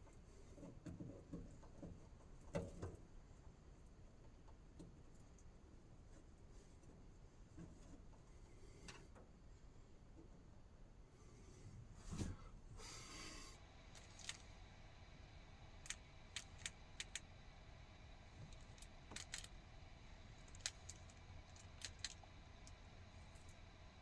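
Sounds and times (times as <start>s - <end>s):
small hard objects clicking: 13.9s - 14.6s, 15.8s - 17.3s, 18.4s - 19.6s, 20.3s - 22.8s.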